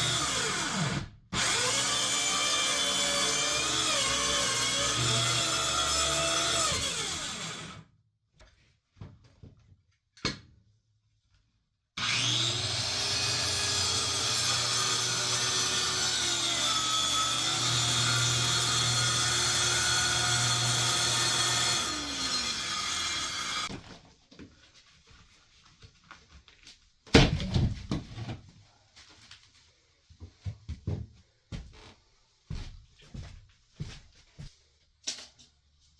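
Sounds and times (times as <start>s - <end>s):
electric saw cutting wood: 0.0s - 7.8s, 12.0s - 23.7s.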